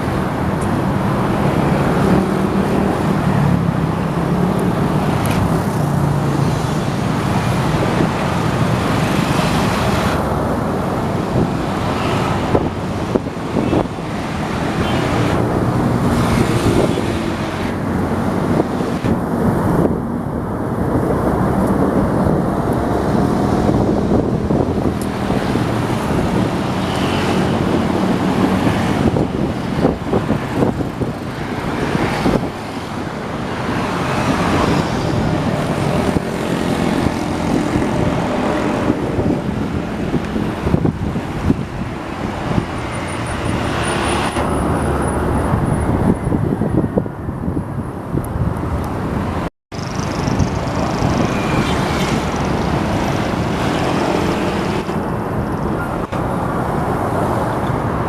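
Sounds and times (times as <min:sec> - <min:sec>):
train passing with loud rumble: 0:00.0 - 0:58.0.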